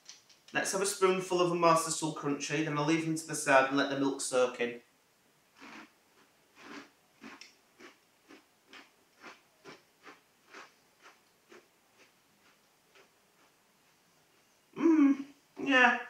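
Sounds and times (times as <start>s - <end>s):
person chewing crunchy cereal: 5.6s - 13.6s.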